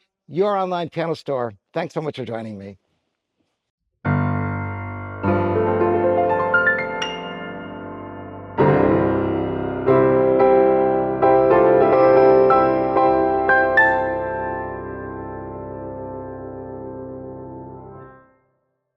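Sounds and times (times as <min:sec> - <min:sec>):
solo piano music: 0:04.1 - 0:18.3.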